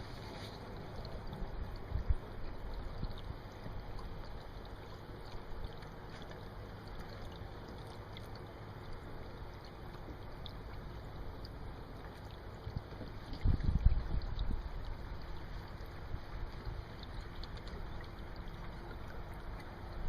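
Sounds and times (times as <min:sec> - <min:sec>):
wind rumbling on microphone: 0:00.0 - 0:04.4, 0:12.7 - 0:20.0
water lapping against boat hull: 0:00.0 - 0:20.0.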